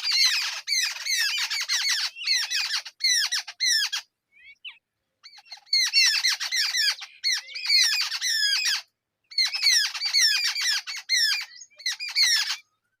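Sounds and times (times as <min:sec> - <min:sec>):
nestlings begging calls: 0:00.0 - 0:12.8.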